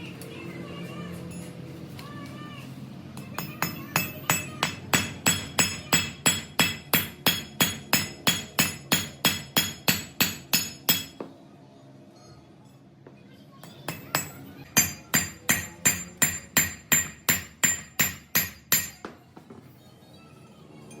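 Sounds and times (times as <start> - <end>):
hammer striking steel: 3.3 - 11.3, 13.6 - 19.2.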